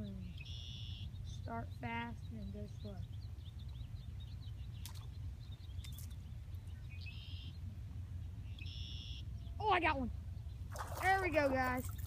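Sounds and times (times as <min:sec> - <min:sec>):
small birds chirping: 0:00.0 - 0:12.0
steady low rumble: 0:00.0 - 0:12.0.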